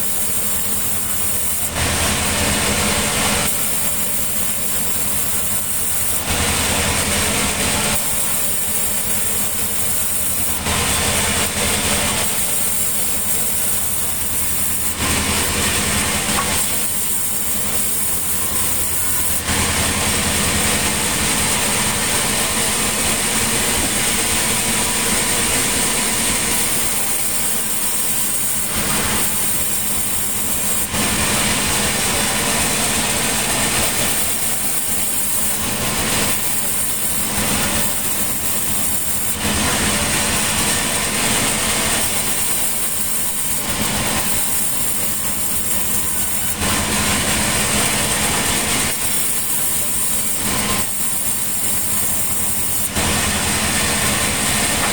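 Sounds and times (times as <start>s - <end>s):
sawmill machinery droning: 0.0s - 54.9s.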